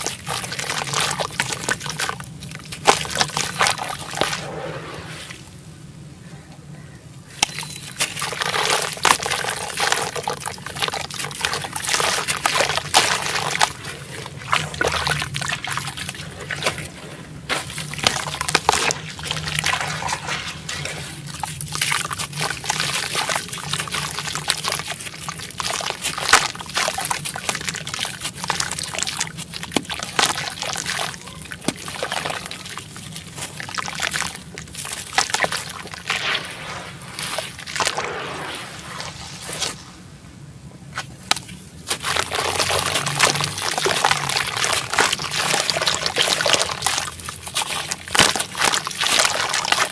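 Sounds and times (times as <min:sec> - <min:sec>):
cement crumbling in water: 0:41.1 - 0:49.9.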